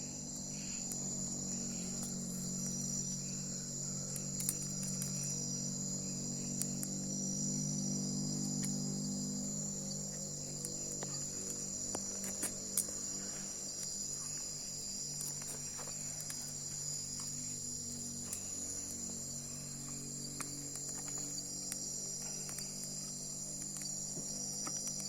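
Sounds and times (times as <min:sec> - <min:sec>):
crickets chirring: 0:00.0 - 0:25.0
low steady drone: 0:00.0 - 0:25.0
small crackles: 0:00.2 - 0:05.5, 0:09.9 - 0:25.0.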